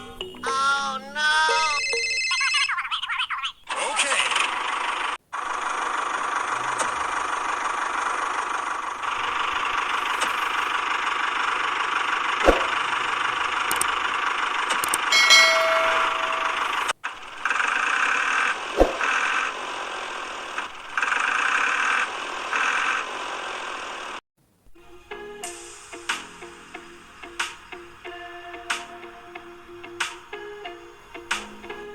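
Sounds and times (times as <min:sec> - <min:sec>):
tractor motor running: 0:04.6 - 0:15.2
sharp clicks: 0:13.6 - 0:15.1
brief pitched tone: 0:15.2 - 0:16.9.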